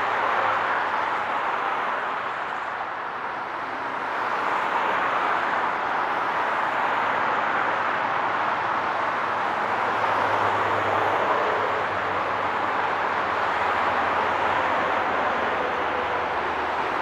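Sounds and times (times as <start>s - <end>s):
highway traffic: 0.0s - 17.0s.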